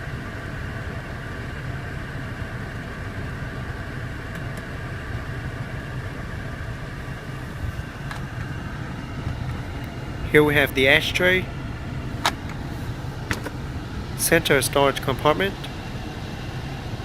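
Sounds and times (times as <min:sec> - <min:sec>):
car engine idling hum: 0:00.0 - 0:17.0.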